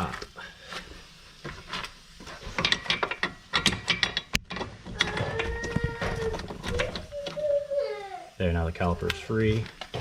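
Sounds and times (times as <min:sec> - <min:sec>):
bolt squealing: 0:03.6 - 0:07.4.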